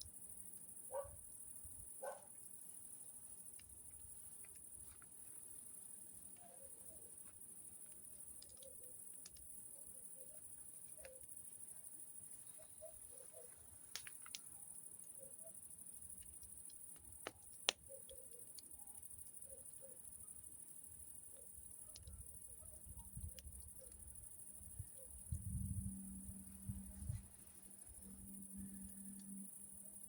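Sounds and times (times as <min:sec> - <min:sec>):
crickets trilling: 0:00.0 - 0:30.0
campfire crackling and popping: 0:03.4 - 0:05.4, 0:07.4 - 0:09.7, 0:13.8 - 0:15.2, 0:15.8 - 0:19.1, 0:21.1 - 0:24.2.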